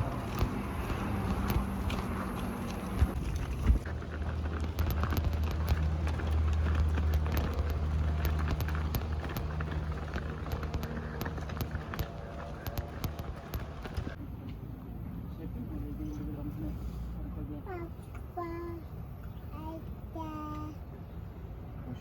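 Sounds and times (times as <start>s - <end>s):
small clicks and knocks: 0.0s - 14.2s
vehicle engine humming: 0.0s - 21.2s.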